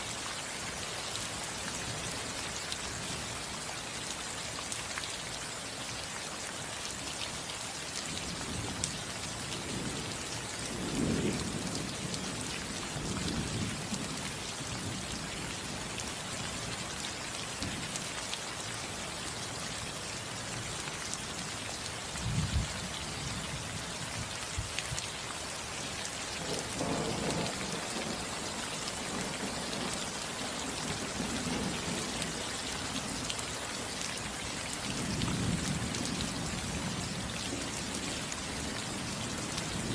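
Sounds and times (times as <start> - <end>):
rain falling on a roof: 0.0 - 39.9
low rolls of thunder: 10.7 - 12.4, 26.4 - 28.2.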